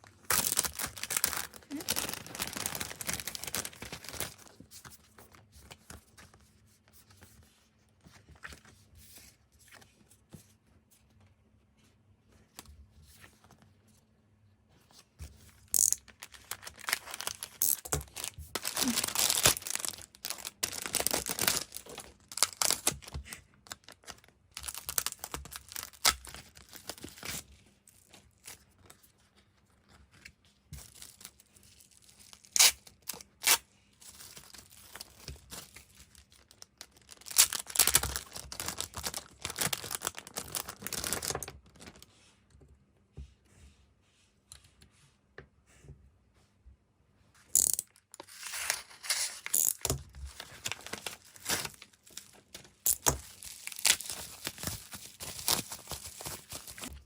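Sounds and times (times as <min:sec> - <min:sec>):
packaging rustling and ripping: 0:00.2 - 0:04.6, 0:15.8 - 0:27.4, 0:30.8 - 0:42.0, 0:47.6 - 0:57.0.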